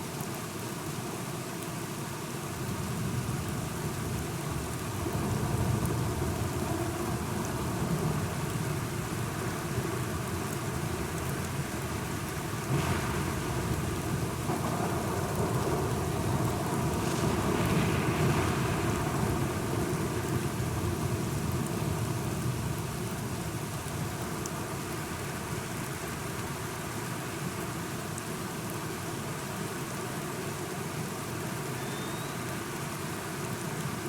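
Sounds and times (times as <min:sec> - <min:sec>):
steady rain: 0:00.0 - 0:34.0
thunder rolling: 0:12.7 - 0:21.2.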